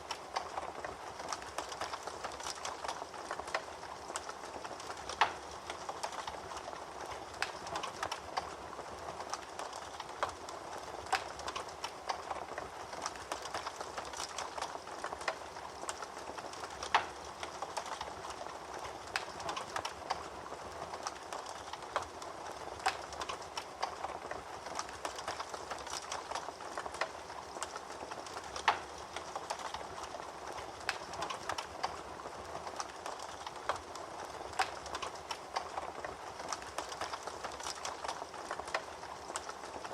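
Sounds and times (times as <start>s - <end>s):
fire crackling in fireplace: 0.0s - 39.9s.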